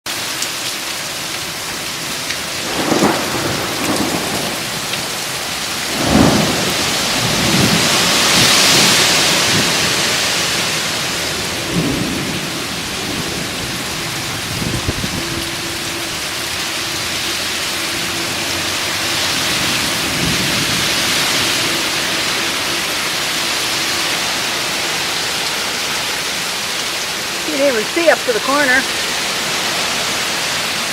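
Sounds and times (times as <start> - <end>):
heavy rain pouring: 0.1 - 30.9
thunder cracking and rumbling: 2.5 - 10.0, 10.9 - 17.5.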